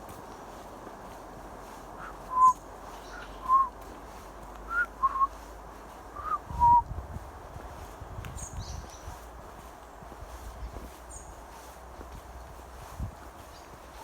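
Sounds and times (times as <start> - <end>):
small birds chirping: 1.6 - 5.4, 7.8 - 14.0
whistled notes in pairs: 2.3 - 2.6, 3.4 - 3.7.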